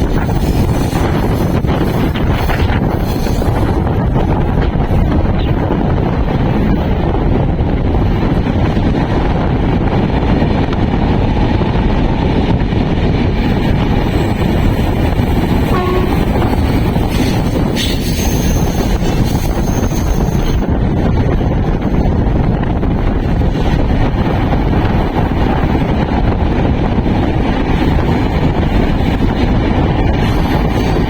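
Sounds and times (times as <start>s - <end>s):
passenger train rumble: 0.0s - 31.0s
wind buffeting microphone: 0.0s - 31.0s.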